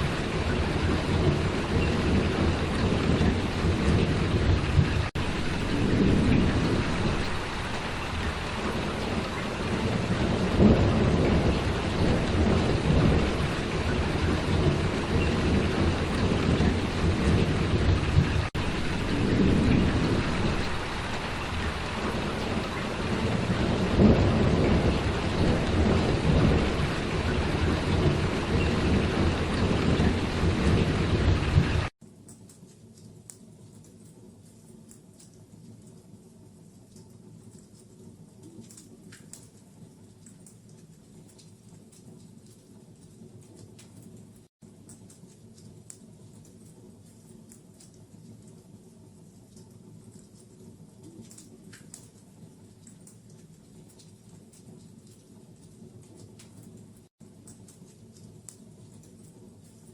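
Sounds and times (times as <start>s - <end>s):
heavy rain: 0.0s - 31.9s
low rumbling: 0.0s - 31.9s.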